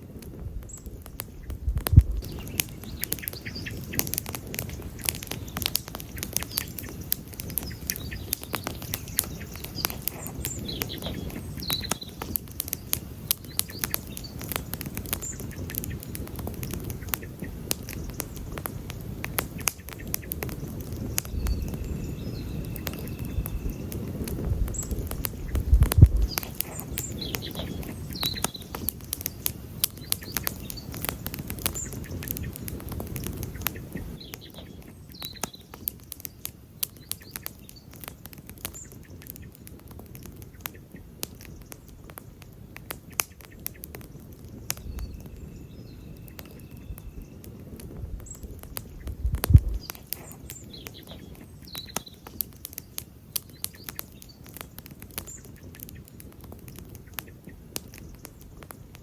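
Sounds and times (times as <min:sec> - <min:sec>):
campfire crackling and popping: 0:00.0 - 0:59.0
deep rumble: 0:01.3 - 0:02.4, 0:24.4 - 0:26.4, 0:48.0 - 0:49.8.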